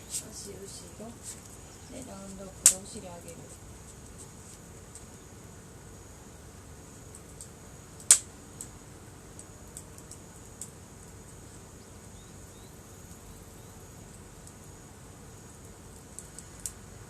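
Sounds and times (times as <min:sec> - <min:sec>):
campfire crackling and popping: 0:00.0 - 0:17.0
insects trilling: 0:00.0 - 0:17.0.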